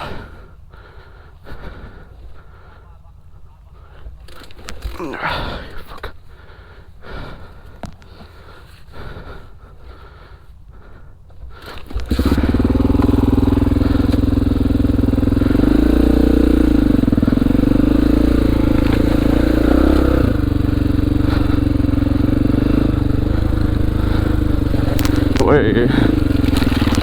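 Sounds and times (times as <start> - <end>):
motorcycle engine running: 11.8 - 27.0.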